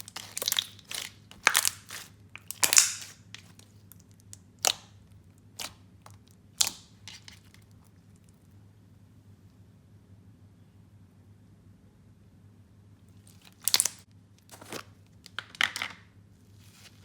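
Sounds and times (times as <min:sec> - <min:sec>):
slime beads crunching and popping: 0:00.0 - 0:04.9, 0:13.5 - 0:14.8.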